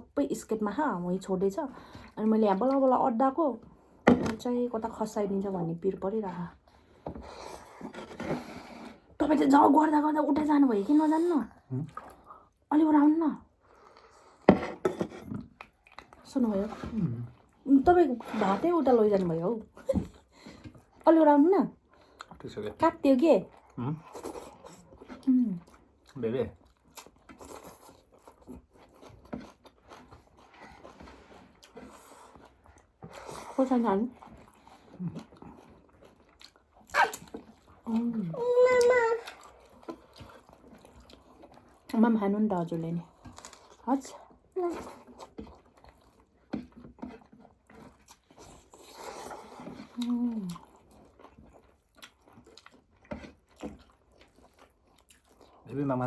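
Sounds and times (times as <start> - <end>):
faint chewing and mouth noises: 0.0 - 4.0, 4.8 - 56.0.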